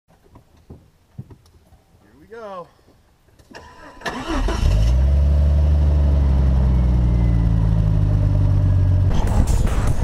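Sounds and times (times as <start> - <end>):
engine starting and idling: 3.5 - 8.2.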